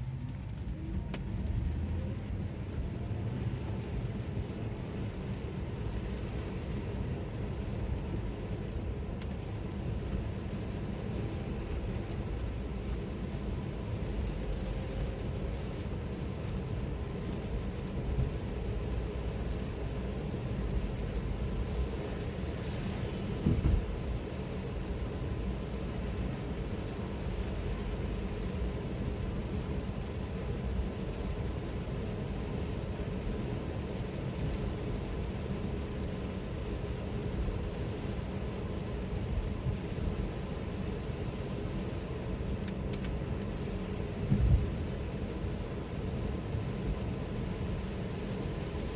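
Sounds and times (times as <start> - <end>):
road and tyre rumble: 0.0 - 48.9
low thump: 23.4 - 23.8.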